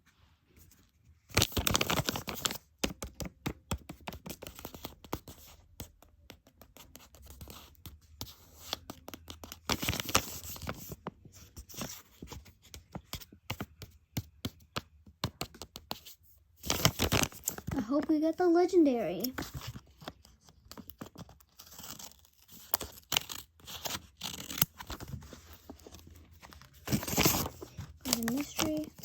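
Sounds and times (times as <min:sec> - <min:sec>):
packaging tearing and crinkling: 0:21.0 - 0:25.2.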